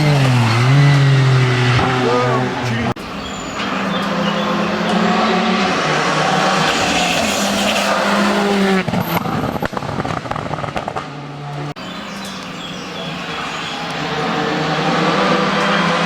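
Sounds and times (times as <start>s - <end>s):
race car engine revving: 0.0s - 16.0s
exhaust pops: 6.6s - 12.5s.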